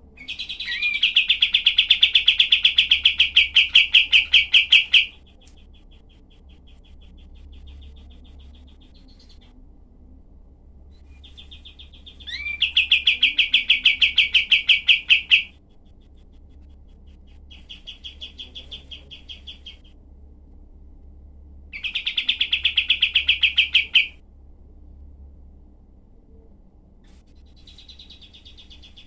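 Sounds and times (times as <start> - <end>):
bird singing rapid trills: 0.2 - 9.6, 10.9 - 20.0, 21.7 - 24.2, 27.4 - 29.0.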